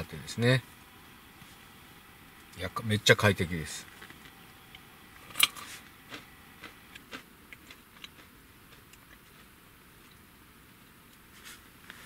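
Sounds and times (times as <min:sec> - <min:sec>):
person chewing crunchy snack: 0:05.2 - 0:10.2.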